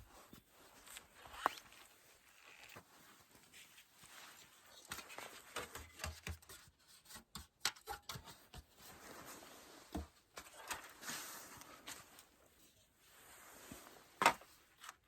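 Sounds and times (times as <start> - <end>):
rustling: 0.0 - 6.6.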